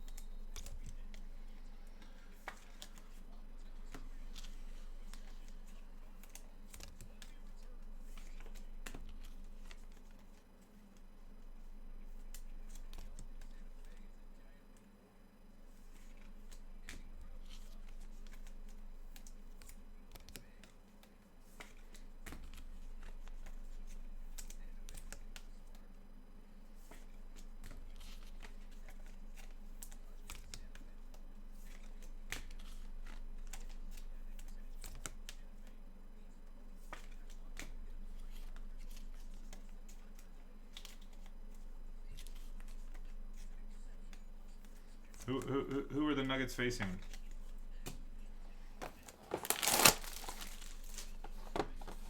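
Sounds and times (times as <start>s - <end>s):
faint steady hum: 0.0s - 52.0s
packaging crinkling and rustling: 48.8s - 52.0s.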